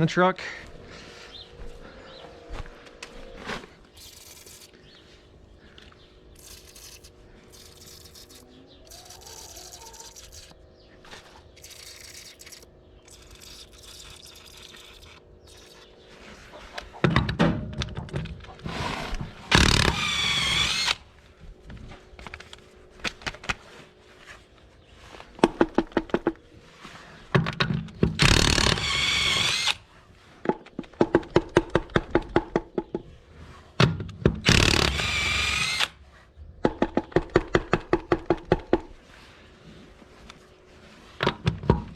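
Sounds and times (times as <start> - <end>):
impact wrench rattling: 4.0 - 4.7, 6.4 - 10.5.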